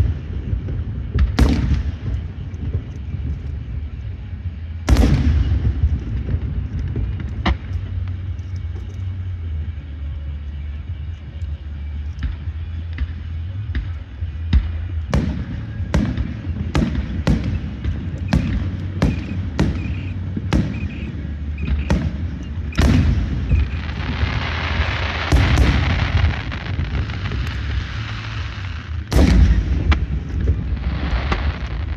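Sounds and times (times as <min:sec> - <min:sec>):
fireworks bangs: 0:00.0 - 0:03.7, 0:04.9 - 0:08.0, 0:15.1 - 0:31.9
low rumble: 0:00.0 - 0:31.9.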